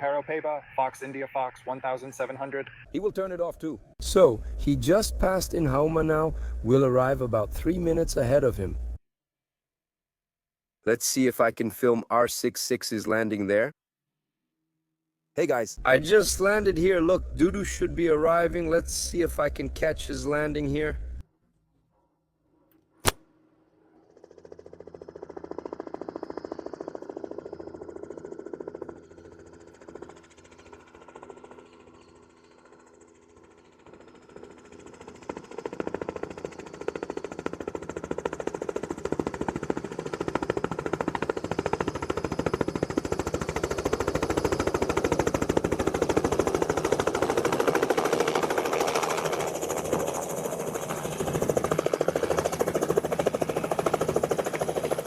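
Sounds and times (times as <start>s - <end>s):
helicopter rotor and turbine: 0.0s - 9.0s, 15.8s - 21.2s, 23.3s - 55.0s
sharp click: 23.0s - 23.2s.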